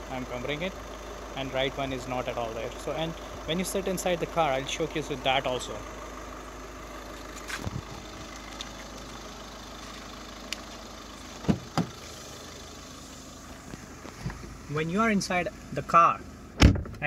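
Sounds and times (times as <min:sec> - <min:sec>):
car engine idling: 0:00.0 - 0:17.0
car door thumps: 0:11.4 - 0:12.0, 0:13.7 - 0:14.6, 0:16.6 - 0:17.0.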